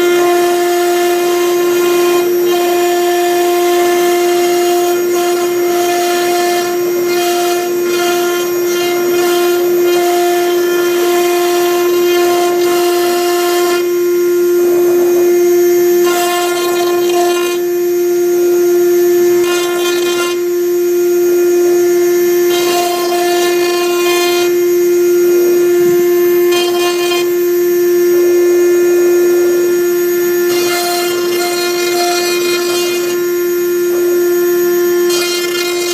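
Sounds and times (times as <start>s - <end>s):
bit rasping into wood: 0.0s - 13.9s, 16.0s - 17.7s, 19.2s - 20.6s, 22.4s - 24.7s, 26.2s - 27.5s, 30.4s - 33.5s, 34.8s - 35.9s
router spindle whining: 0.0s - 35.9s.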